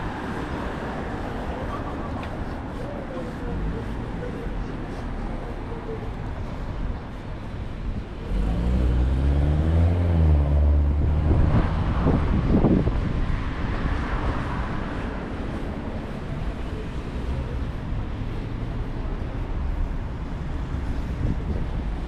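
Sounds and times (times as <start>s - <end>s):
background traffic: 0.0s - 22.0s
tyre and road noise: 0.0s - 22.0s
vehicle passing close by: 8.2s - 15.2s.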